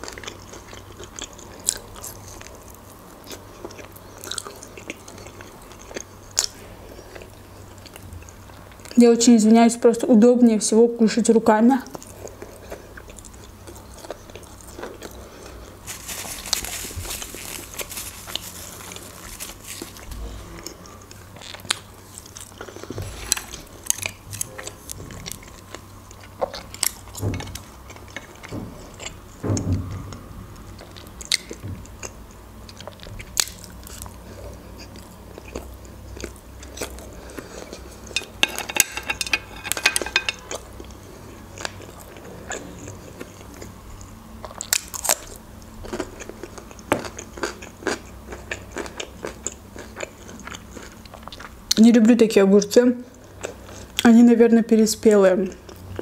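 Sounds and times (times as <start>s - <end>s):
person chewing and biting food: 12.0s - 29.2s.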